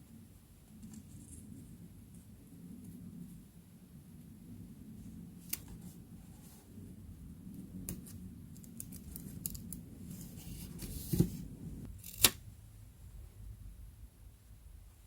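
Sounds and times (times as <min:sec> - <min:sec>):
paper rustling: 0:10.1 - 0:11.5.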